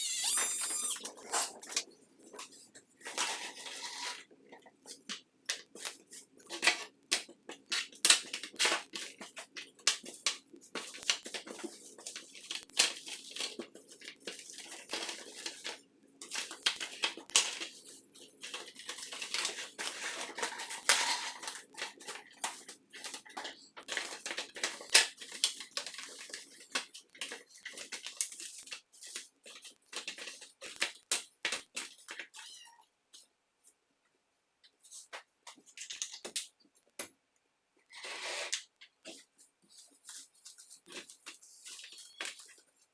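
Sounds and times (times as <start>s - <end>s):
scraping and clicking of small parts: 0.0s - 17.8s.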